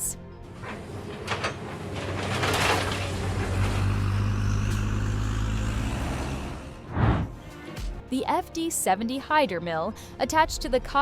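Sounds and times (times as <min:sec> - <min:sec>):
heavy machine engine humming: 0:00.5 - 0:06.8.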